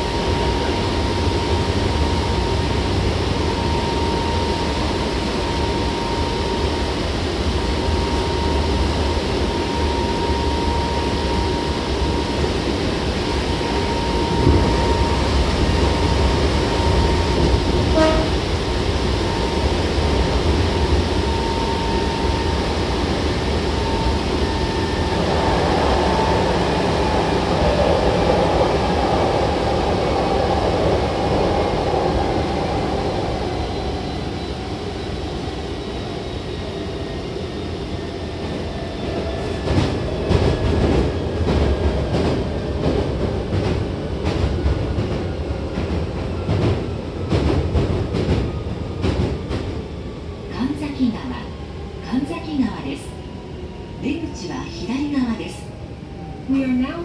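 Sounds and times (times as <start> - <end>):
train rumble with motor whine: 0.0 - 53.2.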